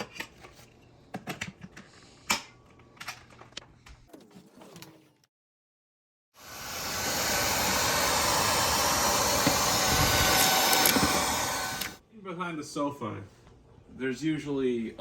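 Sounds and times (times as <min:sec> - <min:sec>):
stick vacuum running: 0:06.4 - 0:12.0.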